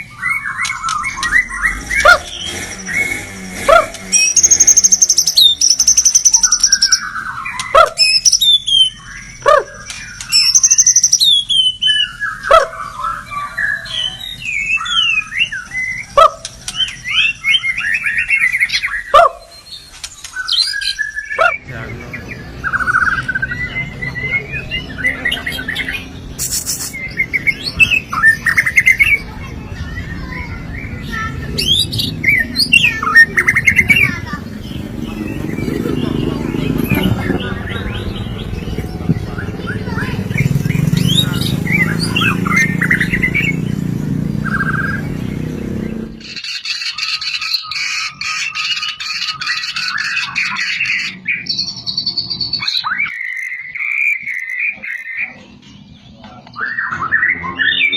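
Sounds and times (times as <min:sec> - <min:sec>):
bird singing whistles and trills: 0:00.0 - 0:03.2, 0:04.2 - 0:21.7, 0:44.4 - 0:57.9.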